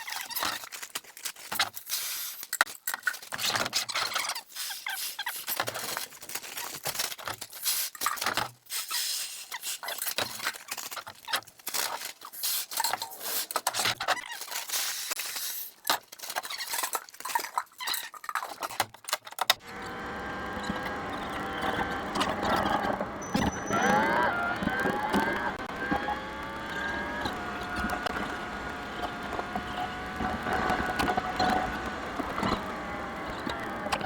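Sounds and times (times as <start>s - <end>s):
steady hum with held tones: 19.6s - 34.0s.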